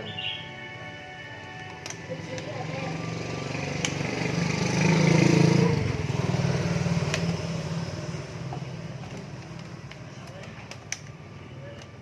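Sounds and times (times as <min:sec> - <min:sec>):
small engine humming: 0:02.0 - 0:09.8
sharp clicks: 0:03.7 - 0:04.2, 0:07.0 - 0:07.4, 0:09.0 - 0:12.0.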